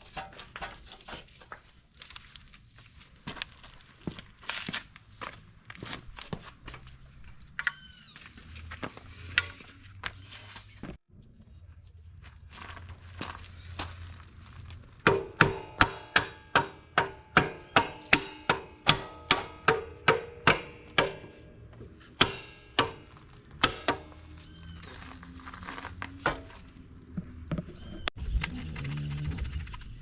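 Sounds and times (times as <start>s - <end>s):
hammer striking metal: 15.0s - 25.1s, 26.1s - 26.6s.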